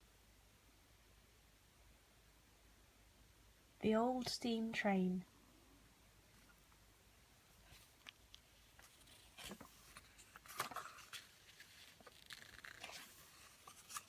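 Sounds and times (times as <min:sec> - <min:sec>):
book pages turning: 0:07.6 - 0:14.0.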